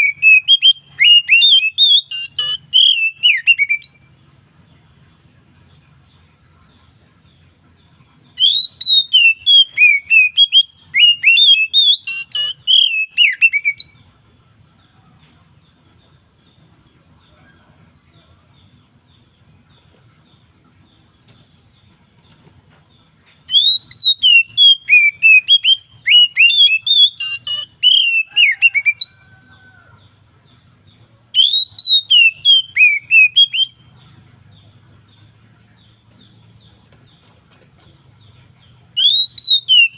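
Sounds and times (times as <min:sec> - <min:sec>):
bird singing whistled song: 0:00.0 - 0:04.1, 0:08.4 - 0:14.0, 0:23.4 - 0:29.4, 0:31.3 - 0:34.0, 0:39.0 - 0:39.9.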